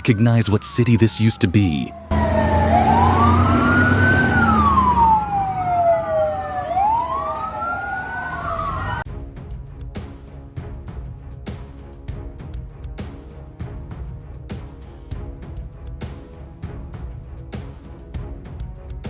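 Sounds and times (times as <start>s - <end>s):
emergency sirens wailing: 0.0s - 9.1s
music with a steady beat: 9.1s - 19.0s.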